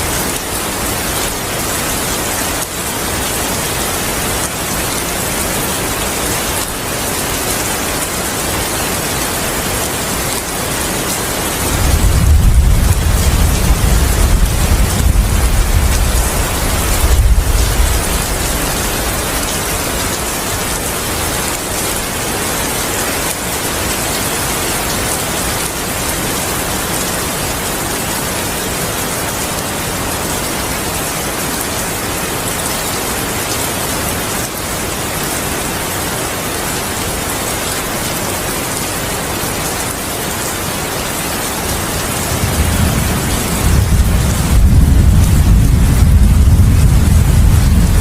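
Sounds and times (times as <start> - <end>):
heavy rain falling: 0.0 - 48.0
low thunder rumble: 11.7 - 19.3, 42.3 - 48.0.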